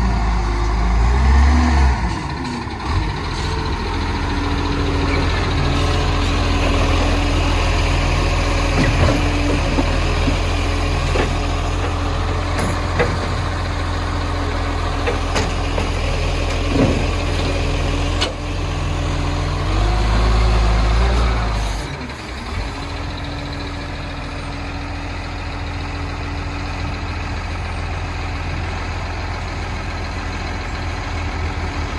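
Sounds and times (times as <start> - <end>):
engine revving: 0.0 - 11.9, 16.6 - 22.8
diesel engine idling: 0.0 - 31.9.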